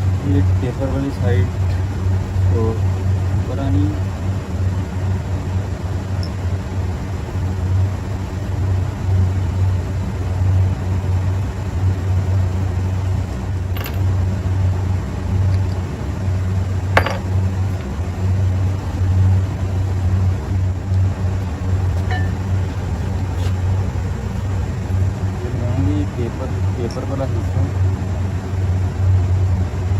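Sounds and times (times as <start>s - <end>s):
low machinery hum: 0.0s - 29.9s
metal parts tapping: 13.7s - 14.2s, 17.0s - 17.4s.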